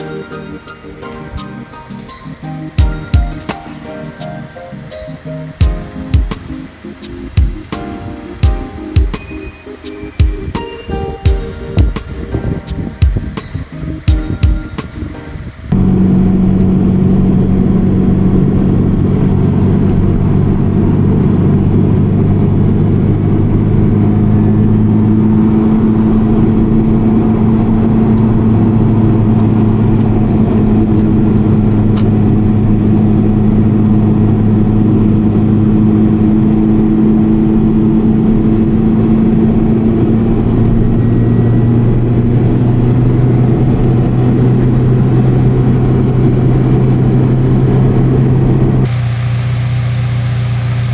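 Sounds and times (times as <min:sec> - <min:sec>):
road noise: 0:00.0 - 0:50.9
car engine driving: 0:13.1 - 0:50.9.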